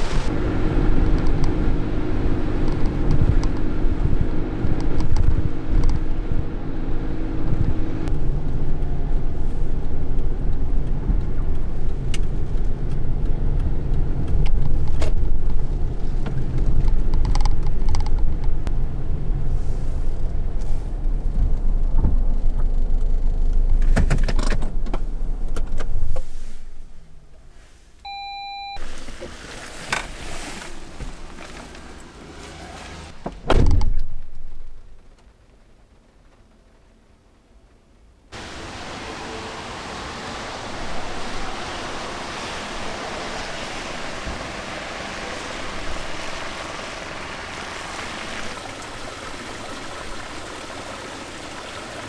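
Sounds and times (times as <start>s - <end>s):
truck engine and road noise: 0.0s - 34.8s, 38.3s - 52.0s
short beep: 28.0s - 28.8s.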